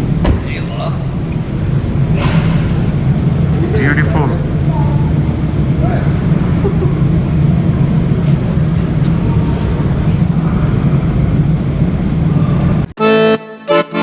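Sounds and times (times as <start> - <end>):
low rumbling noise: 0.0 - 13.0
accordion music: 13.0 - 14.0.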